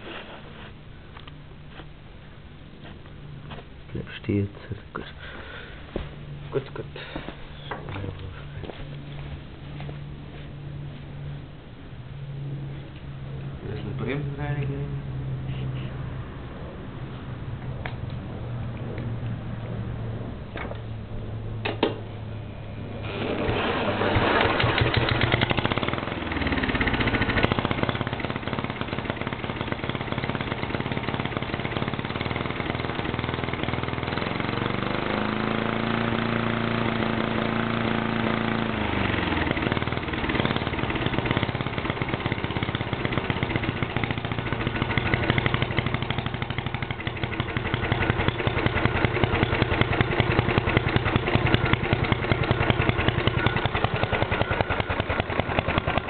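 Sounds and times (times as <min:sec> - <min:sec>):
lawnmower engine revving and idling: 0:02.4 - 0:56.0.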